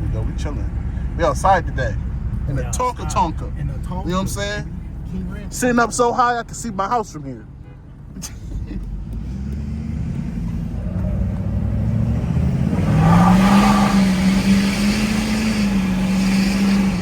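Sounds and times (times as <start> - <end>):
diesel pickup engine accelerating: 8.3 - 17.0.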